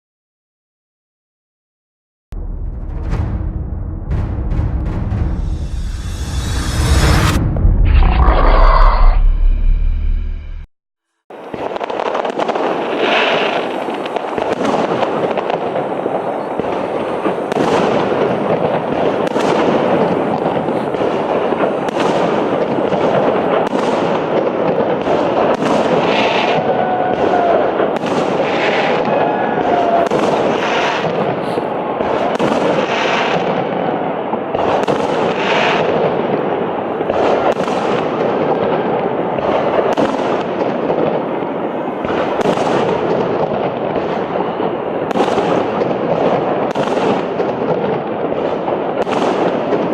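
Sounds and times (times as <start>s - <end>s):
fireworks bangs: 11.3s - 49.9s
fireworks rumble and crackle: 11.3s - 49.9s.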